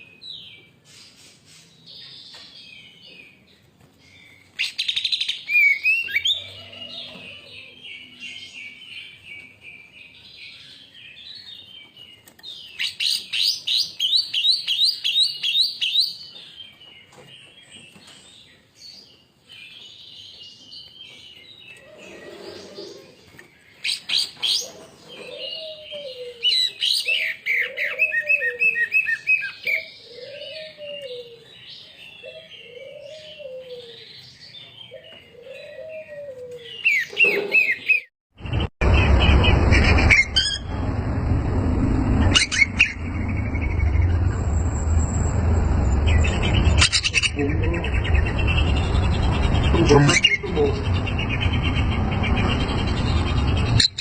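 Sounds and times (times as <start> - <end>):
bird song with trills and whistles: 0.0 - 40.9.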